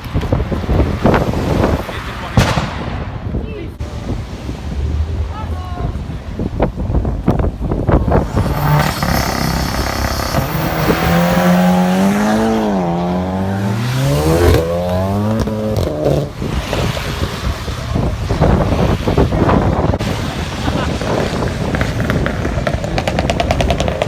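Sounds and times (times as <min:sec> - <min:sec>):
wind: 0:00.0 - 0:24.0
sports car engine accelerating: 0:07.8 - 0:16.9.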